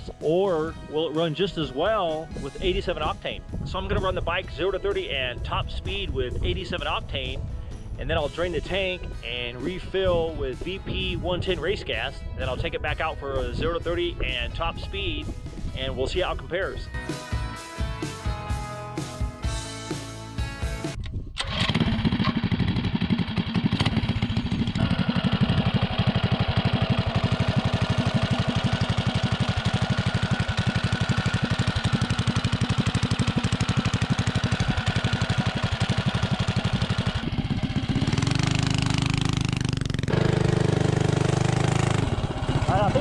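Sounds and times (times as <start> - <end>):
mini bike engine running: 21.4 - 43.0.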